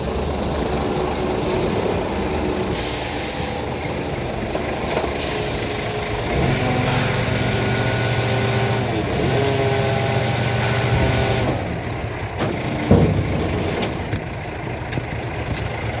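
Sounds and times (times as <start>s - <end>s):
truck diesel engine running: 0.0s - 16.0s
loud clunk: 6.4s - 8.8s, 10.0s - 15.6s.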